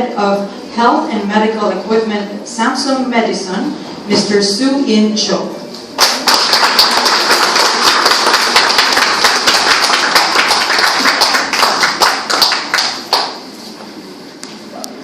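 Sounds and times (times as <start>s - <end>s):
audience applauding: 6.0s - 13.4s.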